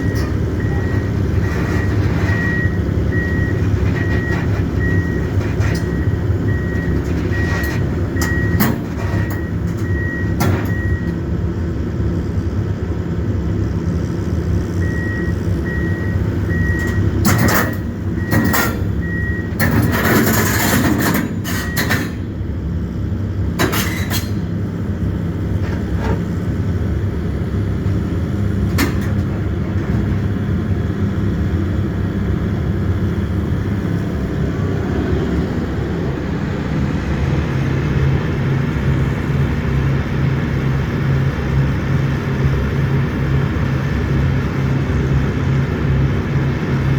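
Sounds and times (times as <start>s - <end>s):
high beeping travel alarm: 0.0s - 5.2s, 8.2s - 8.6s, 14.8s - 17.1s
excavator diesel engine running: 0.0s - 46.9s.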